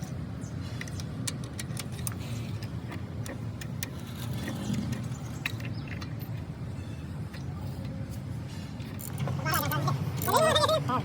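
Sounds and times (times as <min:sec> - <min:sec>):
sharp metallic clicks: 0:00.8 - 0:06.5.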